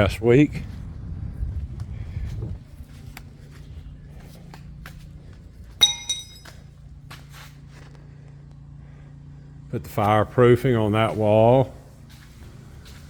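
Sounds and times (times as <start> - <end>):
steady low hum: 0.0 - 13.0
sharp clinks with ringing tail: 5.8 - 6.7.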